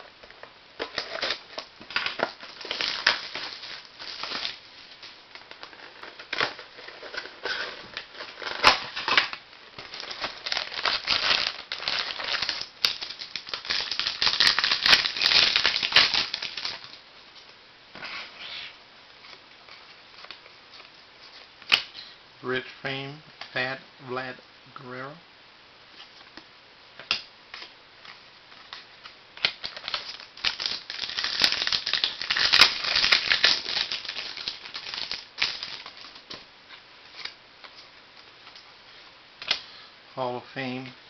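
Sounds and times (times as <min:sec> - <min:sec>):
wrapper crinkling and tearing: 0:00.8 - 0:17.0, 0:28.6 - 0:36.4.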